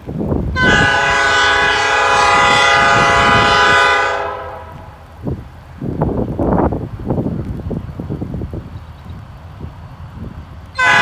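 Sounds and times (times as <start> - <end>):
locomotive air horn: 0.6 - 5.0, 10.8 - 11.0.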